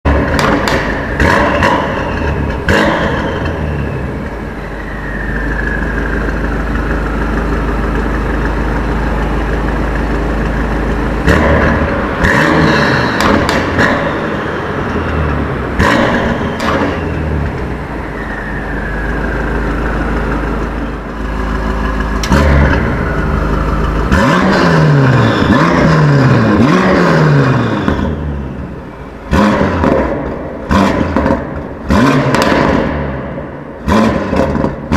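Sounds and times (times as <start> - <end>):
car engine revving: 0.0 - 34.9
deep engine idle: 3.7 - 13.2, 17.1 - 24.1.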